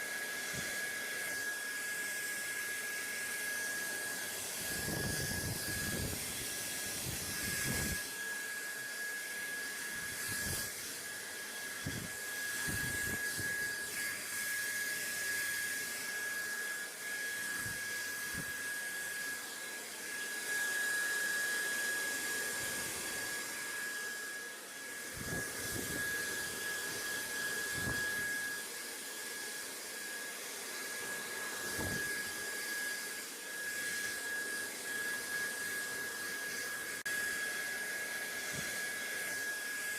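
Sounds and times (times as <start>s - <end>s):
thin whine: 20.1s - 28.8s, 30.2s - 37.4s.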